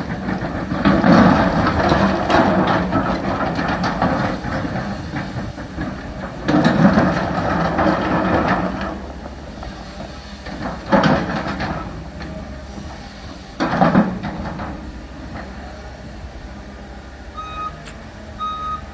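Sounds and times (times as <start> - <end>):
excavator diesel engine running: 0.0 - 18.9.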